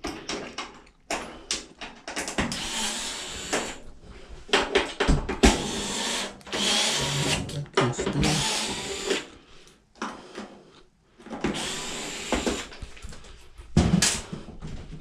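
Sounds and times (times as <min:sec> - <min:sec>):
cordless power drill running: 0:02.5 - 0:03.8, 0:05.5 - 0:07.5, 0:08.2 - 0:09.3, 0:11.4 - 0:12.8.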